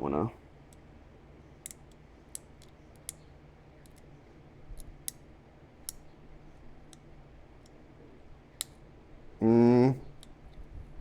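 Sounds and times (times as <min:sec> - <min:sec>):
flaking tool clicking on stone: 0:01.6 - 0:04.1, 0:04.8 - 0:05.2, 0:05.8 - 0:06.1, 0:10.1 - 0:10.5.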